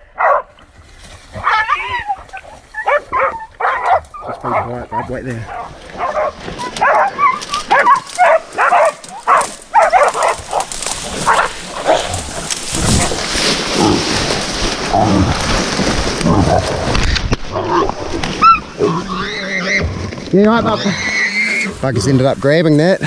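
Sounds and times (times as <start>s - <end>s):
dogs barking: 0.0s - 0.5s, 1.4s - 12.1s
rustling and thumping scuffle: 0.6s - 8.3s.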